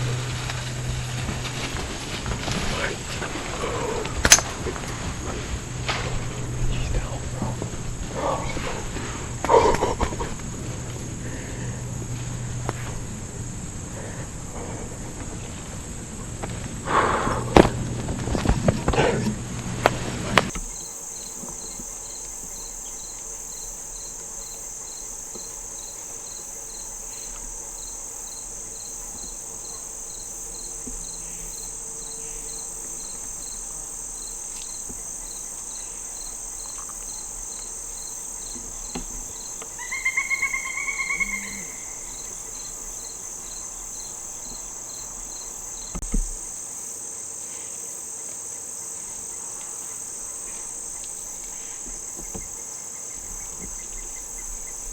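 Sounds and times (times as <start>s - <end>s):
crickets chirping: 0.0s - 54.9s
pulsed animal call: 39.8s - 42.6s.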